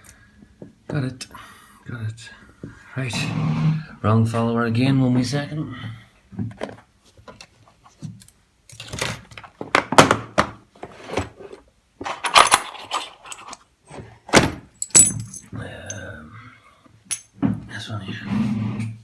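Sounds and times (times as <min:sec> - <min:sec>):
small metal tools clinking: 0:12.1 - 0:13.6, 0:14.7 - 0:16.1, 0:17.1 - 0:17.3.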